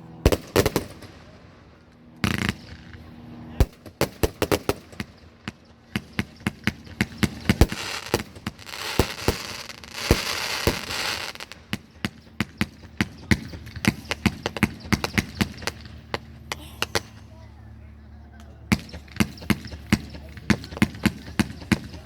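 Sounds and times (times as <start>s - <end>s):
fireworks bangs: 0.3s - 1.4s, 3.6s - 17.2s, 18.7s - 22.0s
fireworks hiss and crackle: 6.4s - 17.2s.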